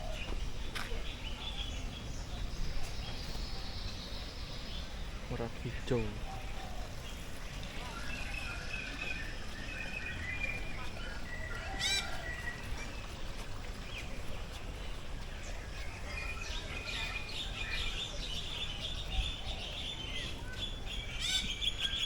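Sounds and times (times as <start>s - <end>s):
birds chirping and twittering: 0.0s - 22.0s.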